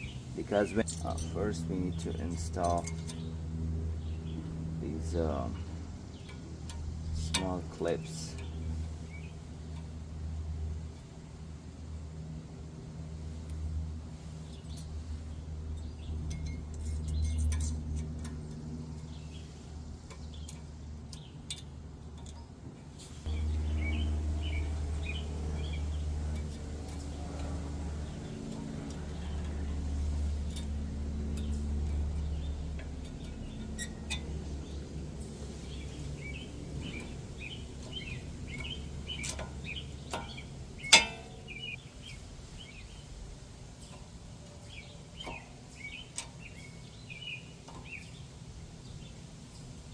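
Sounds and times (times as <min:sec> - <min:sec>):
small birds chirping: 0:00.0 - 0:11.5, 0:13.2 - 0:49.9.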